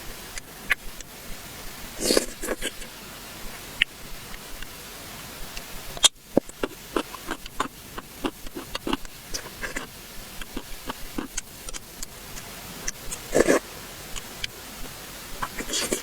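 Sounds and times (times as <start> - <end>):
chewing mouth sounds: 2.0 - 2.9, 5.5 - 16.0.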